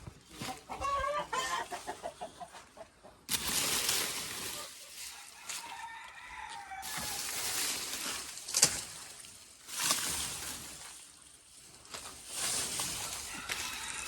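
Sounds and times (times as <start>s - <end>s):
dry leaves crunching underfoot: 3.3s - 14.0s.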